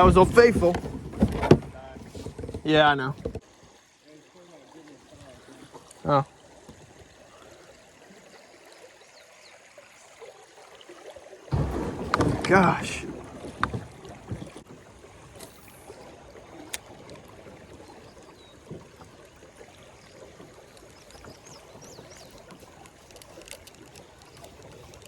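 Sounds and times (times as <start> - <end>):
river water lapping: 0.0 - 25.0.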